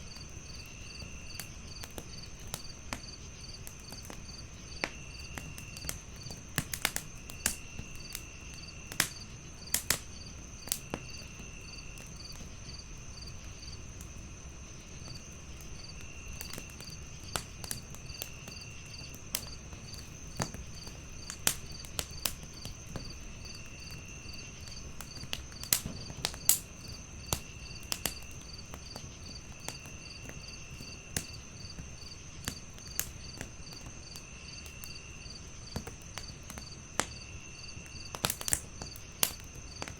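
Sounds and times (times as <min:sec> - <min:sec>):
crickets chirping: 0:00.0 - 0:39.9
wood fire crackling: 0:00.0 - 0:39.9.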